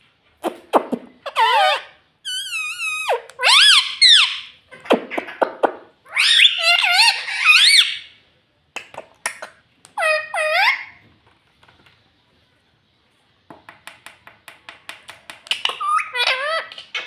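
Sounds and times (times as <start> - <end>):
parakeet calling and chattering: 0.4 - 8.2, 9.0 - 11.0, 15.5 - 17.0.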